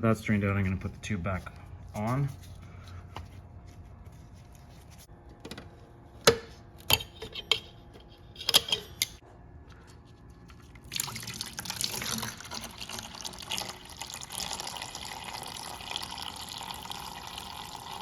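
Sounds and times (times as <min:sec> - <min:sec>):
liquid pouring: 0:10.5 - 0:18.0.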